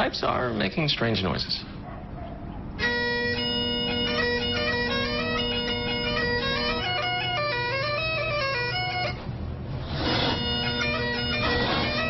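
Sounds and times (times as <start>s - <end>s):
bagpipes playing: 2.8s - 12.0s.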